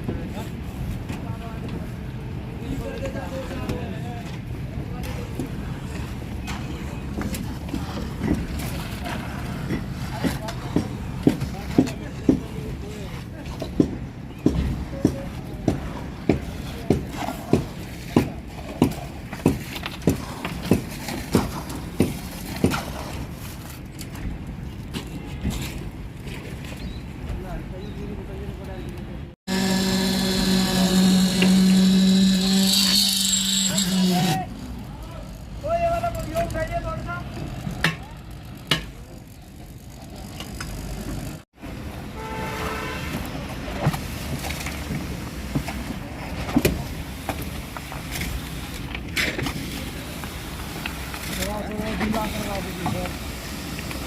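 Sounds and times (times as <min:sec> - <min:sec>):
pump engine rumbling: 0:29.5 - 0:34.4.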